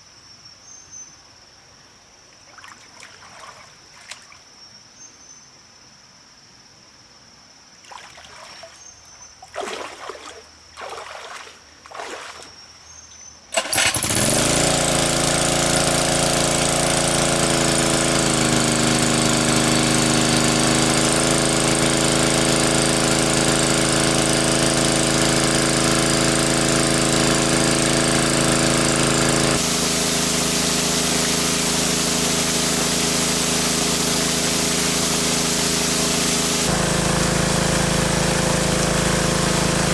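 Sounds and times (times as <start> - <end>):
small engine running: 13.5 - 39.9.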